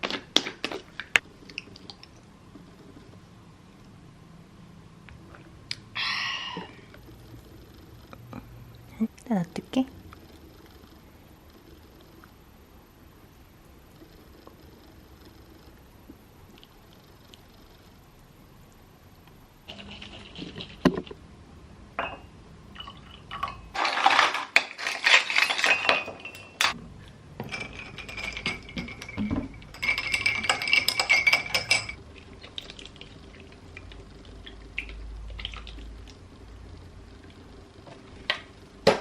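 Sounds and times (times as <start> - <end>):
glassware and dishes clinking: 22.0 - 26.8, 27.4 - 32.0.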